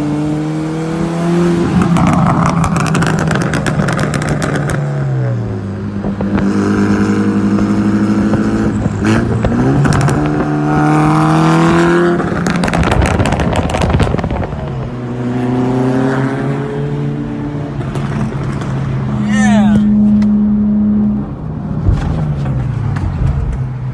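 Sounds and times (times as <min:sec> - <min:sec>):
car engine revving: 0:00.0 - 0:23.9
exhaust crackling pops: 0:12.3 - 0:14.9.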